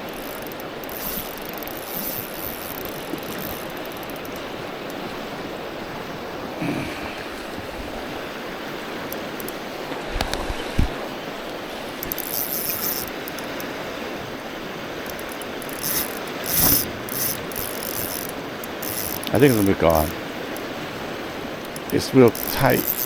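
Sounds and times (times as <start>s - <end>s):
fast-flowing river water: 0.0s - 23.0s
short knocks and clicks: 15.1s - 20.1s.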